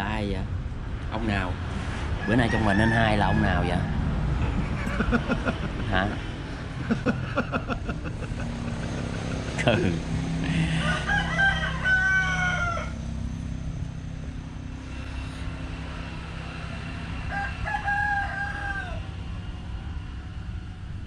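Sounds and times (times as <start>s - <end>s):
steady low hum: 0.0s - 21.0s
rooster crowing: 2.2s - 4.0s, 10.4s - 13.3s, 14.9s - 20.9s.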